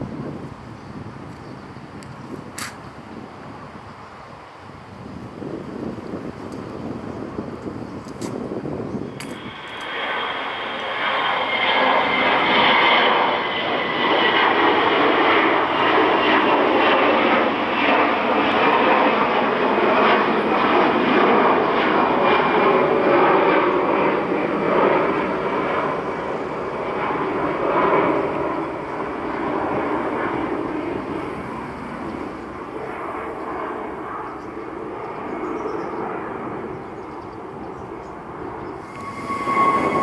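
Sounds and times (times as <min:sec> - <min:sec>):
jet engines at takeoff power: 0:00.0 - 0:40.0
high engine whine: 0:09.0 - 0:16.2, 0:38.7 - 0:40.0.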